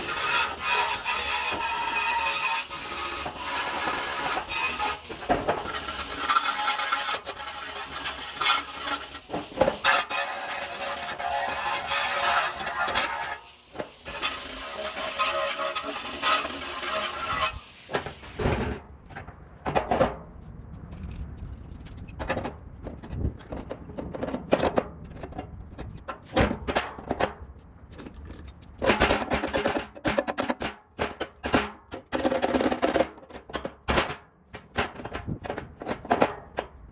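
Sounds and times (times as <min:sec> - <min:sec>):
tools and metal parts clinking: 0:27.9 - 0:30.5.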